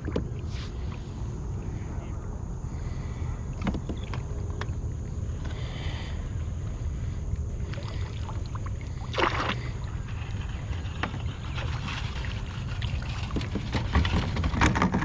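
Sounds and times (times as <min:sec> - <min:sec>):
wind rumble on microphone: 0:00.0 - 0:15.0
water splashing against kayak: 0:07.6 - 0:15.0.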